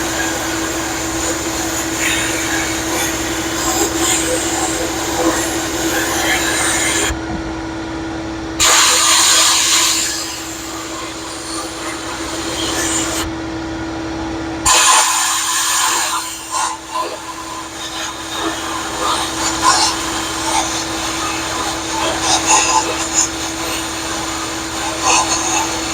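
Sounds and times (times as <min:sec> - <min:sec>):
media blaster hissing on metal: 0:00.0 - 0:07.2, 0:08.6 - 0:13.3, 0:14.6 - 0:25.9
steady hum: 0:00.0 - 0:25.9.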